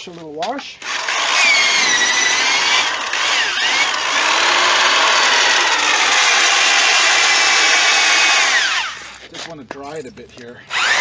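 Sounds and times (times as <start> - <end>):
electric drill motor whine: 0.8 - 9.2, 10.7 - 11.0.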